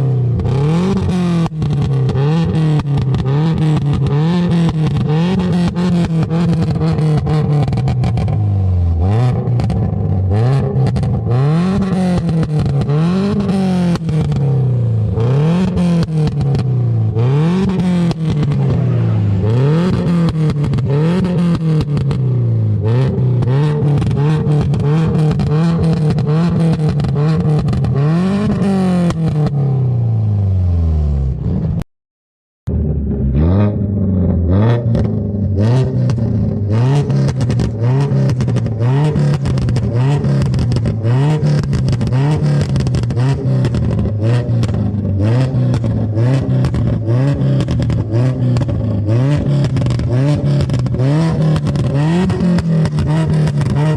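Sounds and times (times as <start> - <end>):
car engine revving: 0.0 - 31.8, 32.7 - 53.9
exhaust crackles: 0.4 - 29.4.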